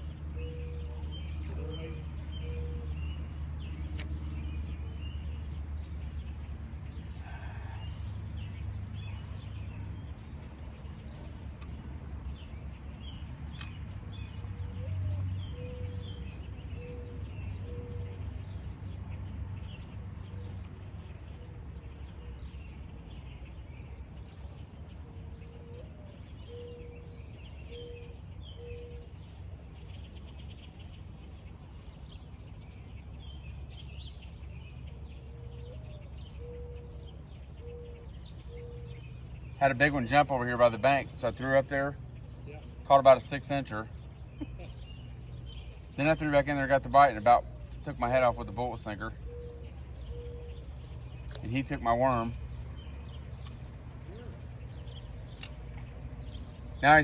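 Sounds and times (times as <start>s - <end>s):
low hooting bird calls: 0.0s - 3.2s, 7.1s - 8.6s, 14.6s - 18.5s, 24.8s - 31.1s, 32.9s - 55.6s
birds chirping: 0.0s - 57.0s.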